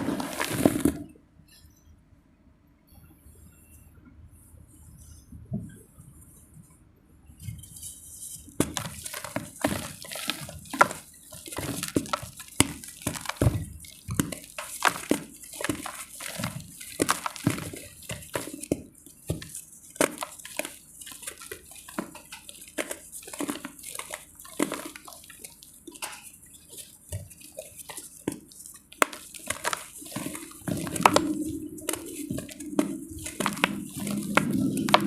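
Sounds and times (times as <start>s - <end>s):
dry clay crumbling and crunching: 0.0s - 1.1s, 8.6s - 35.0s.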